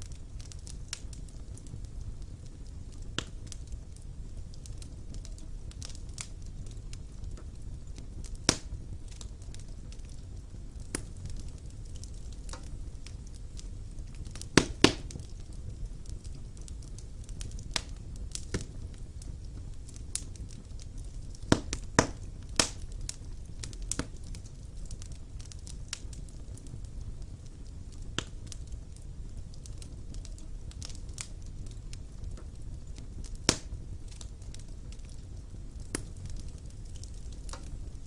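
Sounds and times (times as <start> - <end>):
fire crackles and pops: 0.0 - 38.0
low rumble of flames: 0.0 - 38.0.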